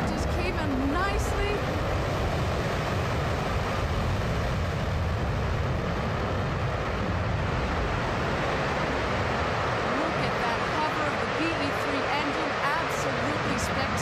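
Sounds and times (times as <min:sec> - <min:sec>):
rocket engine deep rushing: 0:00.0 - 0:14.0.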